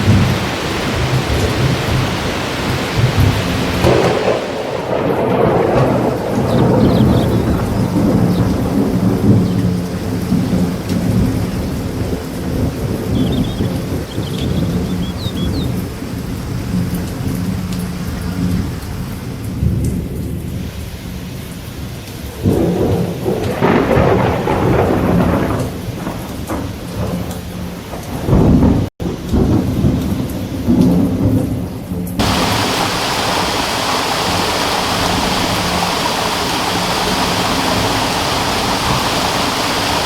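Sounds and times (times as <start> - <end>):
deep rolling rumble: 0.0 - 19.7
rushing water: 0.0 - 31.3, 32.1 - 40.0
faint high chirps: 13.1 - 15.8.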